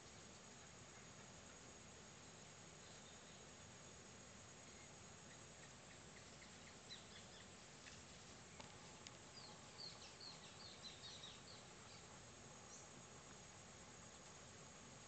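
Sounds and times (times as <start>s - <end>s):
background hiss: 0.0s - 15.0s
bird chirping: 4.7s - 8.7s, 9.3s - 12.1s.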